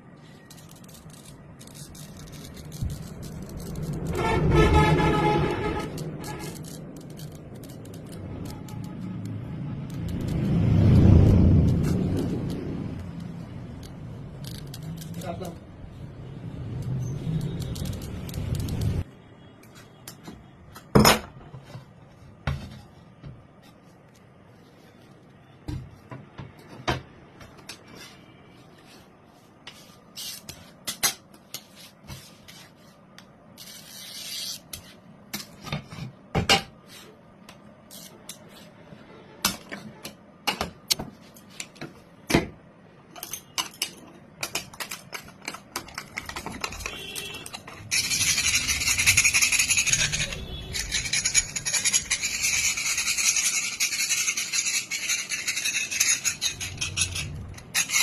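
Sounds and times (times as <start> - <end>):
tools clicking and knocking: 43.1 - 58.0
harsh rasping: 46.6 - 58.0.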